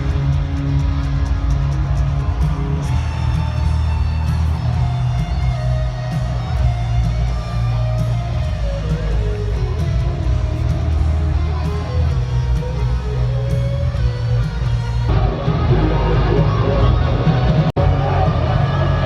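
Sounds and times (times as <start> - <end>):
drums with crashing cymbals: 0.0 - 15.1
electric guitar lead: 0.0 - 19.0
heavy bass: 0.0 - 19.0.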